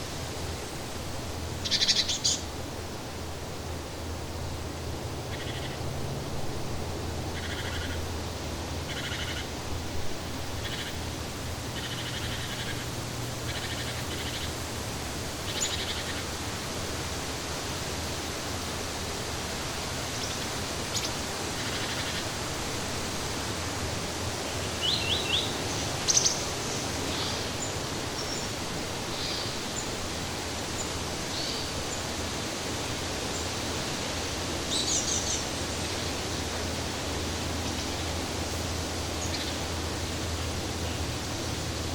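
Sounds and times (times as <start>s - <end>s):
steady outdoor hiss: 0.0s - 41.9s
bird chirps and calls: 1.6s - 2.4s.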